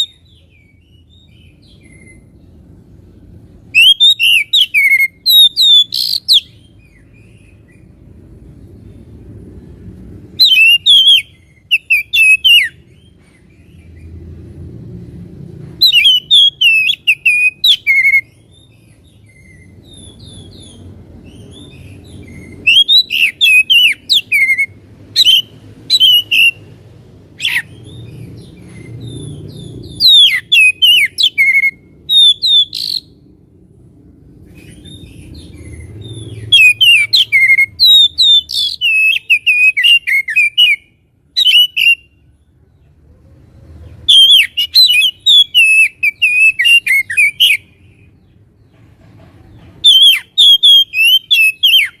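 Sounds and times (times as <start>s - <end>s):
magpie-robin singing whistled phrases: 0.0s - 2.4s, 3.7s - 7.8s, 10.3s - 13.1s, 15.8s - 26.7s, 27.4s - 33.2s, 34.6s - 42.2s, 44.0s - 48.0s, 49.8s - 52.0s
low background rumble: 0.0s - 50.3s.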